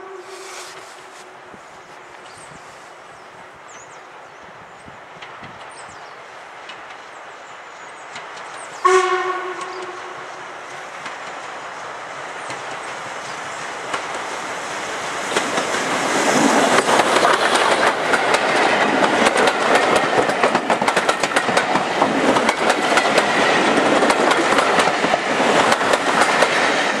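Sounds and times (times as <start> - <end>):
train wheels clattering: 10.8 - 27.0.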